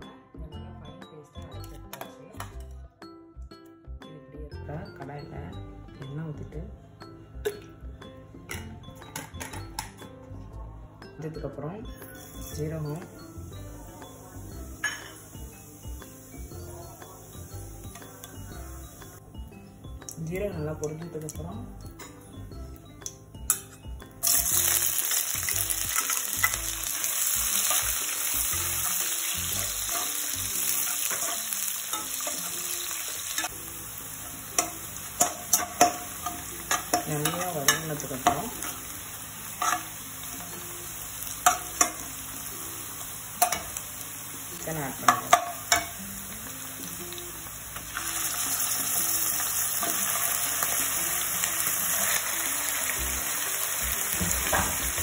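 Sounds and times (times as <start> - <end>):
onions sizzling in oil: 12.1 - 19.2, 24.2 - 55.0
metal spatula scraping a pan: 28.7 - 33.5, 39.5 - 40.6.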